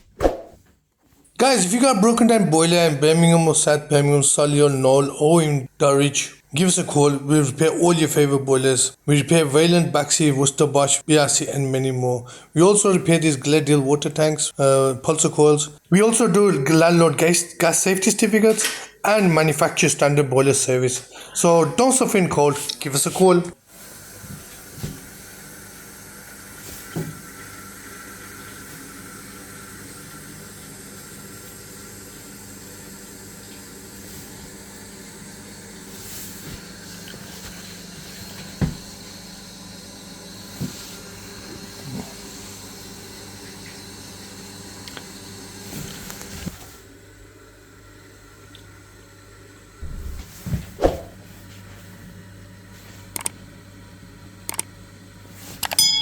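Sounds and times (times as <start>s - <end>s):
water running from a tap: 23.6s - 36.0s.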